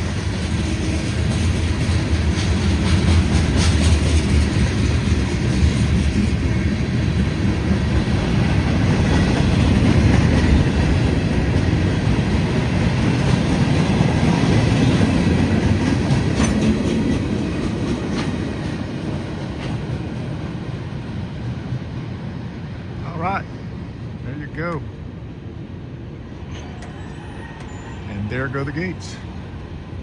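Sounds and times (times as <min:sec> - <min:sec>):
freight train cars rolling: 0:00.0 - 0:25.0, 0:25.7 - 0:30.0
wheels clicking over rail joints: 0:08.0 - 0:20.0.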